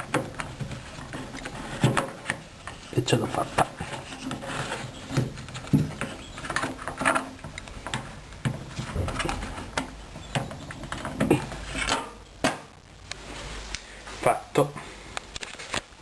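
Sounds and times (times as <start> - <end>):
plastic knocks and clicks: 0.0 - 2.8, 5.0 - 12.7
plastic rustling: 0.0 - 12.2, 15.1 - 16.0.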